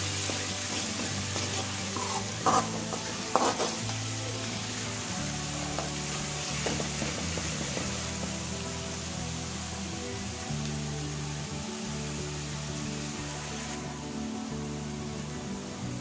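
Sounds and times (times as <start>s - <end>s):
spoon stirring in steel pan: 0.0s - 8.3s
background music: 0.0s - 16.0s
garlic sizzling in oil: 0.0s - 16.0s.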